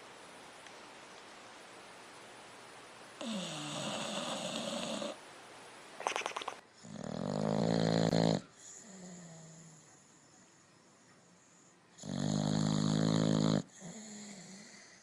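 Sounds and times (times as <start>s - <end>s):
dog snoring: 3.2s - 5.2s, 6.8s - 9.9s, 12.0s - 15.0s.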